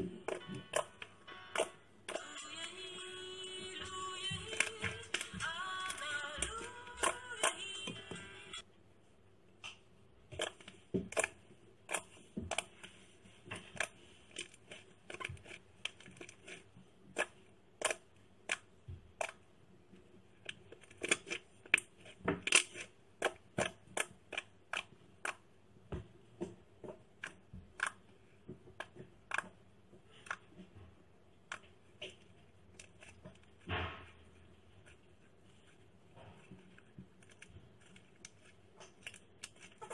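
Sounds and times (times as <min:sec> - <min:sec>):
slime clicking and popping: 0:00.2 - 0:02.2, 0:09.6 - 0:12.8, 0:13.6 - 0:19.5, 0:20.4 - 0:25.5.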